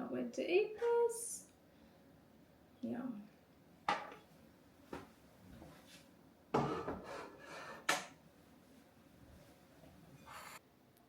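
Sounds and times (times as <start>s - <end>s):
dishes knocking: 3.9s - 4.2s, 6.6s - 7.3s
scraping rub of dishes: 10.2s - 10.6s.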